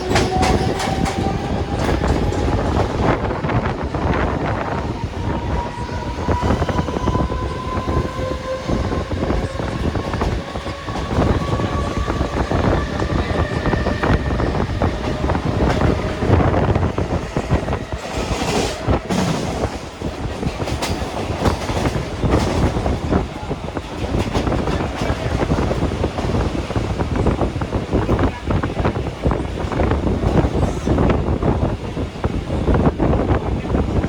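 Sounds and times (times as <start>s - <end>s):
train wheels clattering over rail joints: 0.0s - 3.2s, 9.0s - 27.1s.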